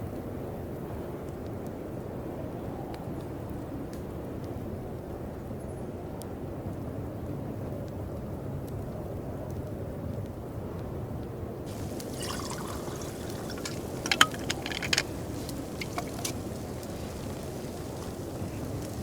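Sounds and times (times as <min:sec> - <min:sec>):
liquid trickling: 0:11.7 - 0:19.0
rain: 0:11.7 - 0:19.0
wind: 0:11.7 - 0:19.0.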